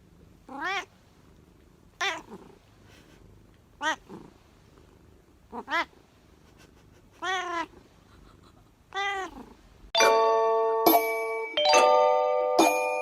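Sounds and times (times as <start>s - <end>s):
cat meowing: 0.5s - 0.9s, 3.8s - 4.1s, 5.5s - 5.9s, 7.2s - 7.8s, 8.9s - 9.5s
bell-like chime: 10.0s - 13.0s.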